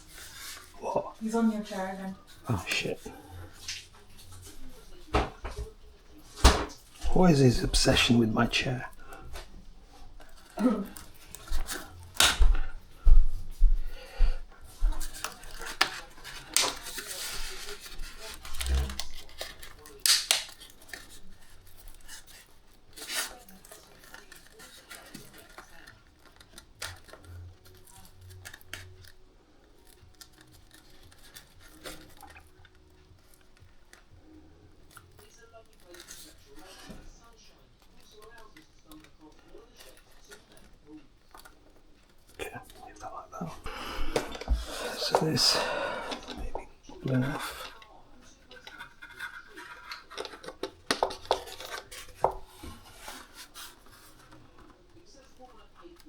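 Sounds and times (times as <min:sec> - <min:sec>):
rubbing and rustling: 0:00.0 - 0:13.6, 0:14.5 - 0:56.0
small tools clicking and tapping: 0:15.0 - 0:42.9, 0:47.4 - 0:56.0.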